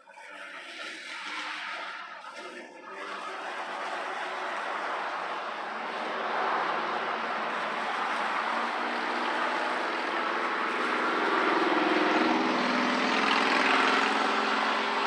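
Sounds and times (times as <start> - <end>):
electric lawn mower running: 3.0 - 15.0.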